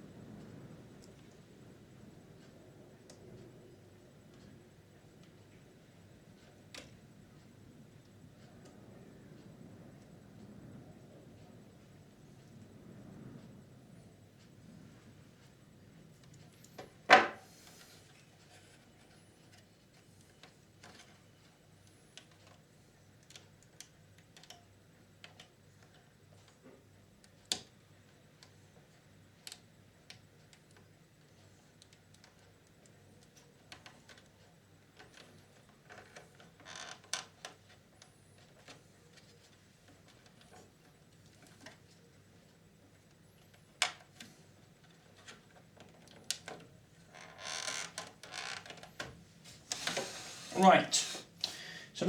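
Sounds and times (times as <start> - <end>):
sharp clicks and light knocks: 15.4 - 50.0.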